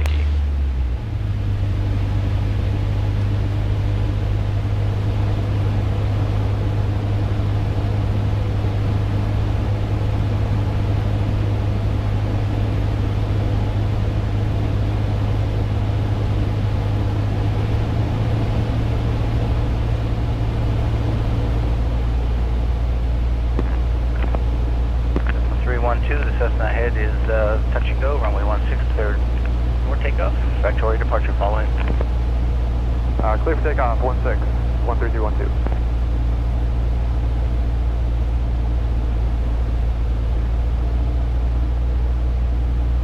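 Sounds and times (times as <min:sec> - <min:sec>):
airplane engine droning: 0:00.0 - 0:43.0.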